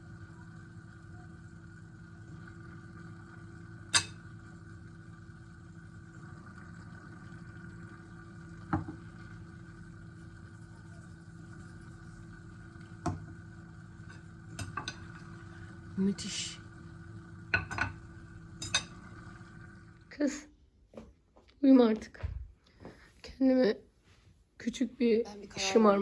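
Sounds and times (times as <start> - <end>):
steady low hum: 0.0 - 20.3
dishes clinking: 14.1 - 15.4, 17.5 - 18.0.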